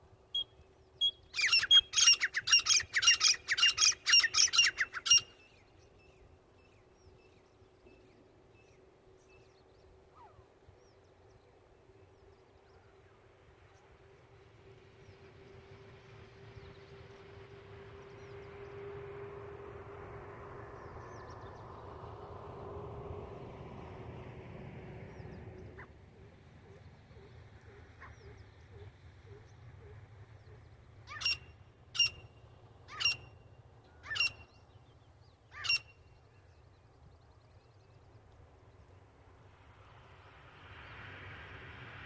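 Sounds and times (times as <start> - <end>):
francolin calling: 0.4 - 5.4, 31.1 - 32.3.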